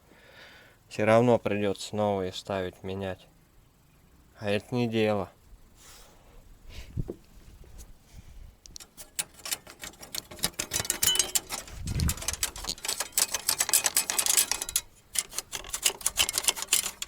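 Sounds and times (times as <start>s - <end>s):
hand tools clicking on metal: 8.6s - 17.0s.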